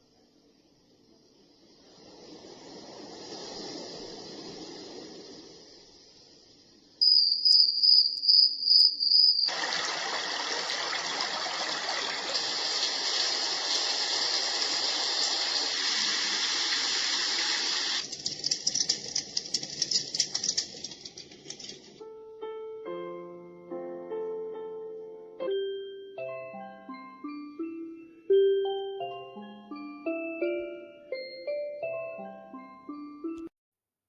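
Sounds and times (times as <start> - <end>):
rushing water-like noise: 1.8 - 6.1, 9.5 - 18.1
high pulsing chirp: 7.0 - 9.5.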